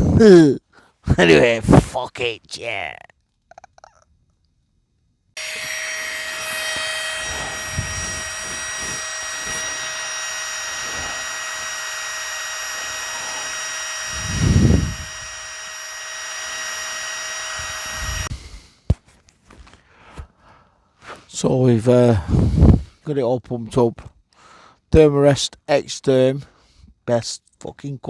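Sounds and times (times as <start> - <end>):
electric air pump whining: 5.4 - 18.6.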